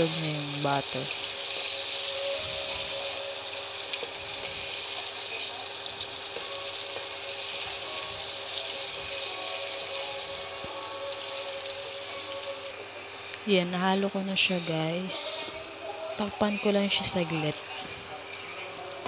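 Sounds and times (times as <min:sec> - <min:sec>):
shrimp sizzling in butter: 0:00.0 - 0:13.4.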